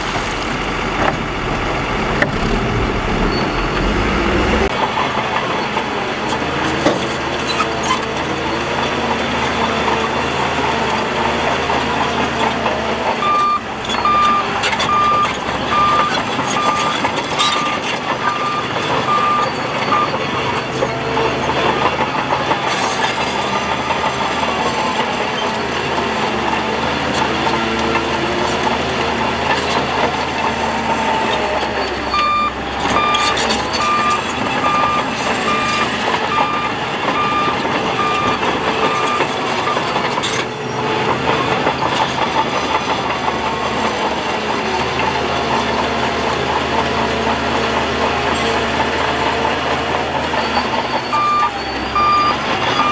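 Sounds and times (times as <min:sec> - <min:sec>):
heavy machinery engines: 0:00.0 - 0:52.9
reversing alarm beeping: 0:00.6 - 0:04.7, 0:13.2 - 0:20.6, 0:32.1 - 0:40.0, 0:50.3 - 0:52.9.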